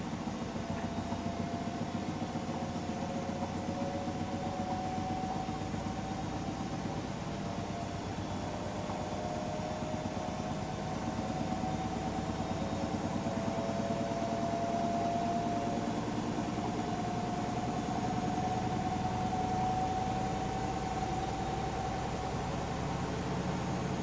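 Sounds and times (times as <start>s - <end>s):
washing machine motor humming: 0.0s - 24.0s.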